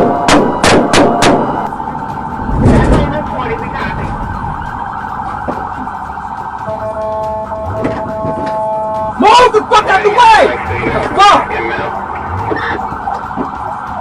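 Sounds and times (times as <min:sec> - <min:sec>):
police siren: 0:00.0 - 0:14.0
low rumble: 0:01.3 - 0:06.0.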